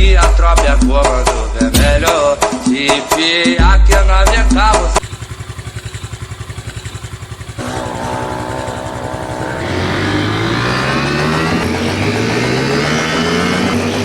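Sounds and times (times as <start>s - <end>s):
motorcycle engine idling and revving: 3.6s - 14.0s.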